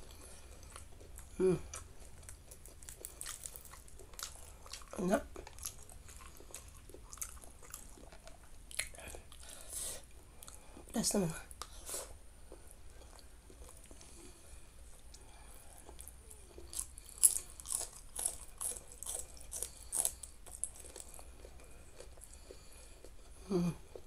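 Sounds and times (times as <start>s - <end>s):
chewing food: 0.0s - 10.9s, 11.5s - 24.0s.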